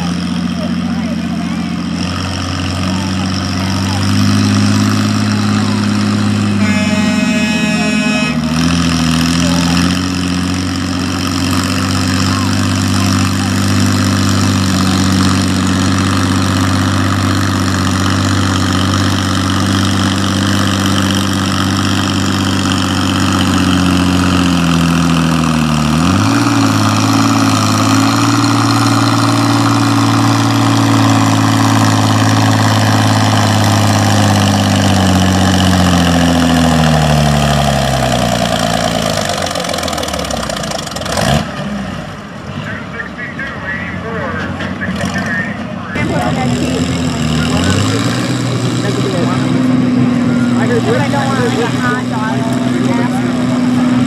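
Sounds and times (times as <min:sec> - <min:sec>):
tractor engine running: 0:00.0 - 0:54.0
short horn-like tone: 0:06.5 - 0:08.5.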